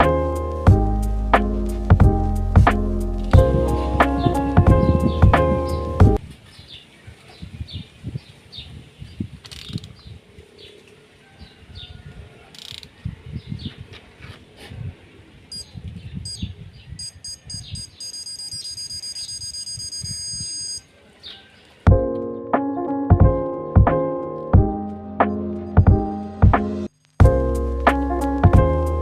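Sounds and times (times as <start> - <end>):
high electronic beeps: 17.0 - 20.9.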